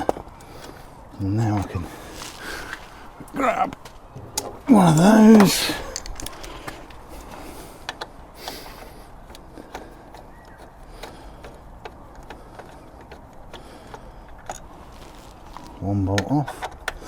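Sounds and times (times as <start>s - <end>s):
hand tools clicking on metal: 3.2s - 14.8s, 16.0s - 17.0s.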